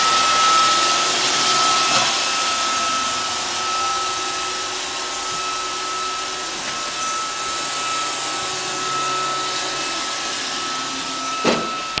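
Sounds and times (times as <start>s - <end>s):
robot vacuum whirring: 0.0s - 12.0s.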